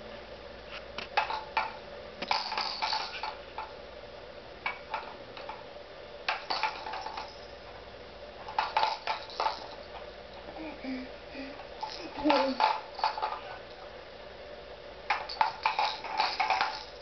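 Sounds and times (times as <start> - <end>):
faint steady hum: 0.0 - 17.0
small hard objects clinking: 8.6 - 9.9, 15.1 - 17.0.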